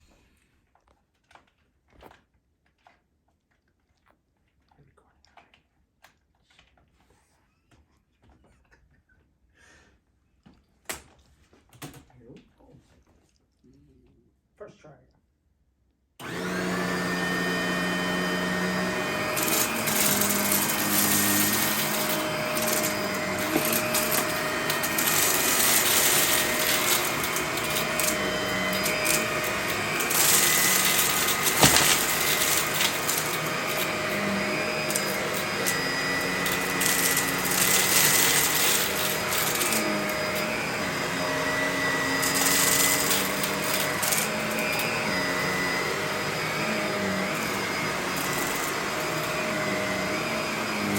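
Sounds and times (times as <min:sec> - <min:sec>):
vacuum cleaner running: 0:16.2 - 0:50.9.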